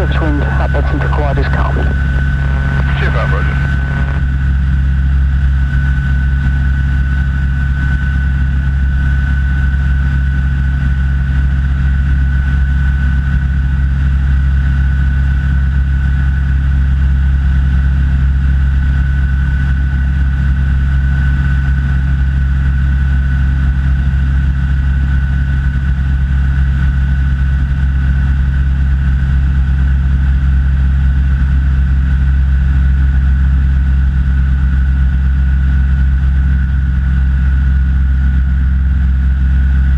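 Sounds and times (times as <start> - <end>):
thin steady whine: 0.0 - 4.3.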